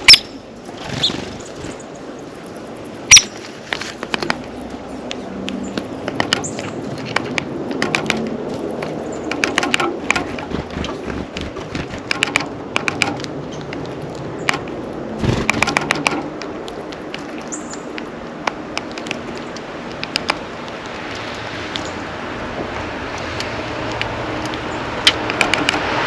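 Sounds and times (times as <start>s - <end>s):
birds pecking seed: 0.0s - 26.0s
high bird chip: 3.1s - 3.4s.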